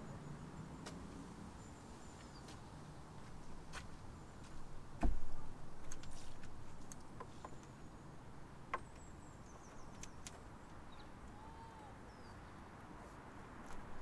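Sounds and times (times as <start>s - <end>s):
faint bird calls: 11.0s - 12.4s.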